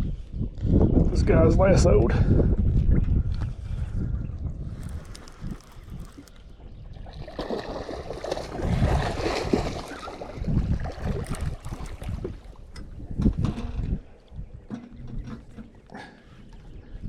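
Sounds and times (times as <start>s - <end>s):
fish splashing in water: 4.8s - 12.7s.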